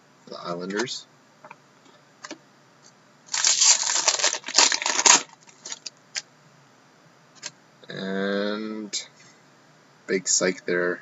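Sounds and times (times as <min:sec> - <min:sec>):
wrapper tearing and crinkling: 0:03.3 - 0:05.9.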